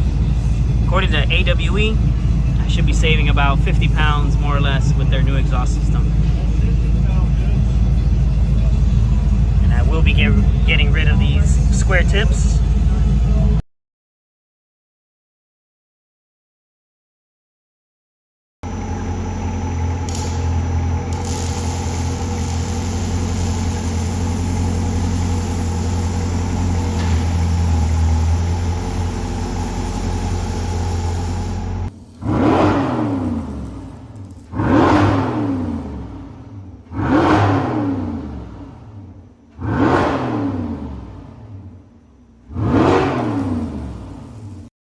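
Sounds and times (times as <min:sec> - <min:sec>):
car engine idling: 0:00.0 - 0:13.6, 0:18.6 - 0:34.5
car engine throttle blips: 0:00.0 - 0:13.6, 0:18.6 - 0:44.6.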